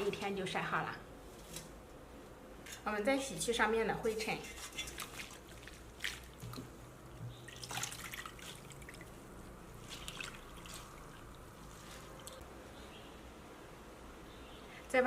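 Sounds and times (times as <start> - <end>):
water splashing and dripping: 4.8 - 9.2, 9.8 - 12.4.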